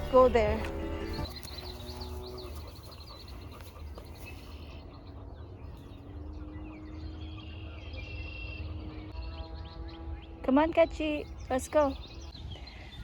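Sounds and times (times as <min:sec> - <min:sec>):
low rumble: 0:00.0 - 0:07.1
birds chirping: 0:00.0 - 0:13.0.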